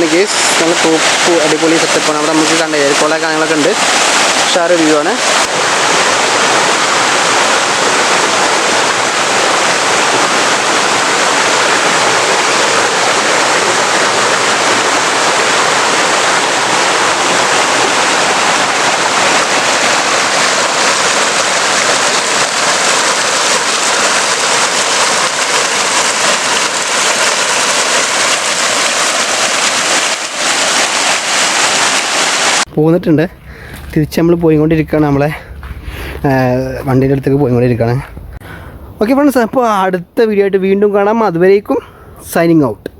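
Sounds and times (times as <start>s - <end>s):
waterfall rushing: 0.0s - 32.7s.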